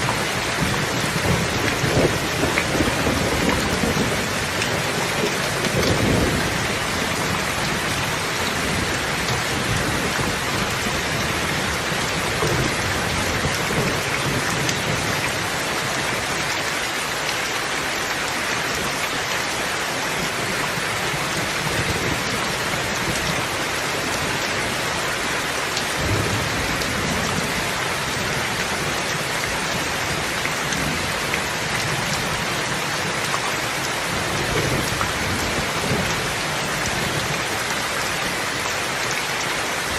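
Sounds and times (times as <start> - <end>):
heavy rain falling: 0.0 - 39.9
distant thunder rumbling: 0.1 - 16.0.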